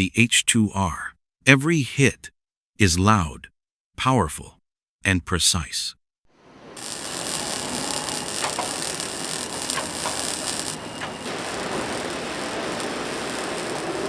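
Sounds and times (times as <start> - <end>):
factory machinery: 6.4 - 14.0
high hiss: 6.4 - 14.0.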